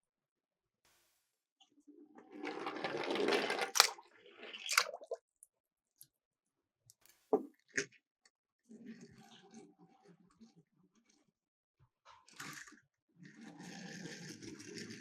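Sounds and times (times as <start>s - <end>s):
toy cars rattling down plastic: 2.3s - 4.1s.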